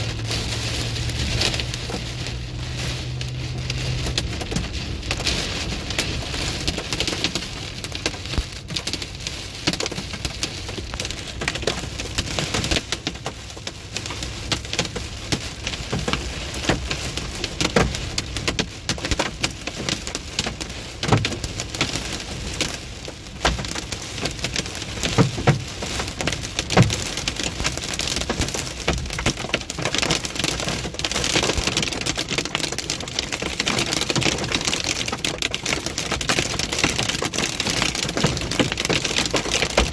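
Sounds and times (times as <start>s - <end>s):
hailstones striking hard surfaces: 23.4s - 39.9s.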